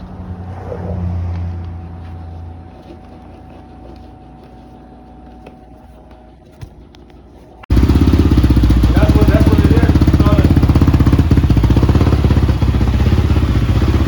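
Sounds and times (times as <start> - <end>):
dirt bike engine pulsing: 7.6 - 14.0.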